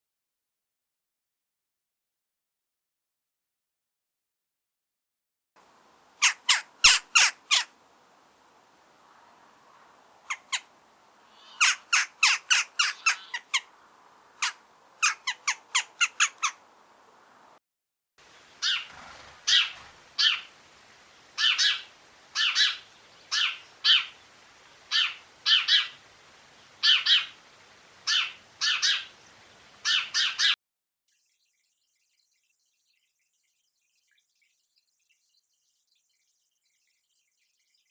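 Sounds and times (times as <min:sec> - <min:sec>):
bird harsh calls: 0:06.2 - 0:07.7, 0:11.3 - 0:13.7, 0:14.4 - 0:16.6, 0:18.3 - 0:30.6.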